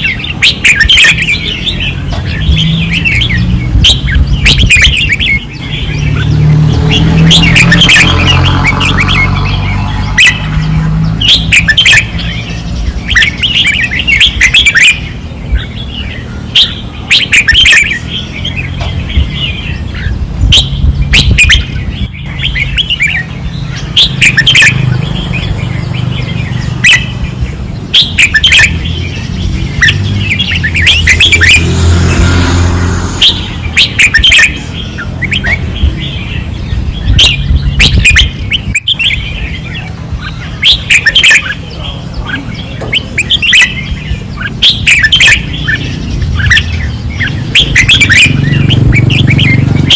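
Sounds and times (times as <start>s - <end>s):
birds singing: 0.0s - 49.9s.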